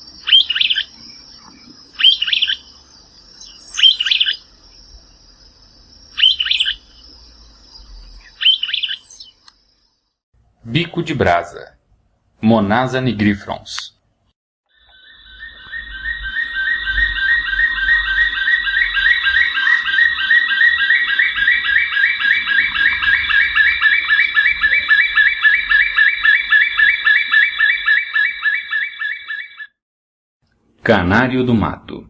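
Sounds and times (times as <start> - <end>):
birds calling in rollicking chorus: 0.0 - 4.6, 5.9 - 9.4, 14.8 - 29.7.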